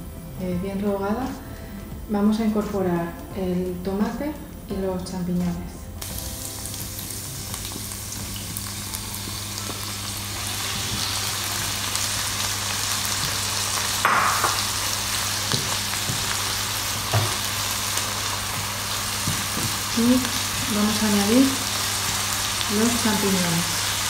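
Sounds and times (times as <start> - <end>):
vegetables sizzling in a pan: 6.0 - 24.0.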